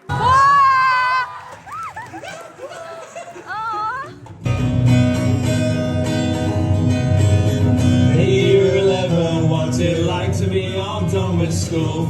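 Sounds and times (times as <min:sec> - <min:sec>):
strummed acoustic guitar: 0:04.4 - 0:12.0
person singing: 0:08.0 - 0:12.0.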